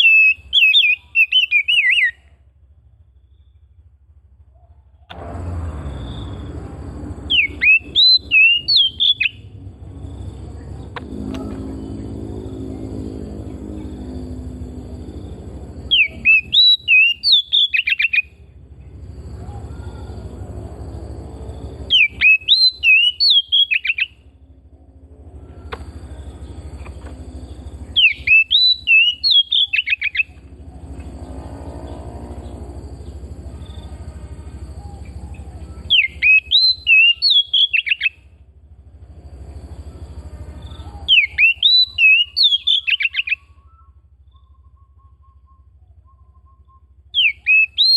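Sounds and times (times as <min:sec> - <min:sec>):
bird whistling song: 0:00.0 - 0:02.2, 0:07.3 - 0:09.5, 0:15.9 - 0:18.4, 0:21.9 - 0:24.2, 0:27.5 - 0:30.4, 0:34.8 - 0:38.3, 0:40.6 - 0:47.9
low steady rumble: 0:00.0 - 0:47.9.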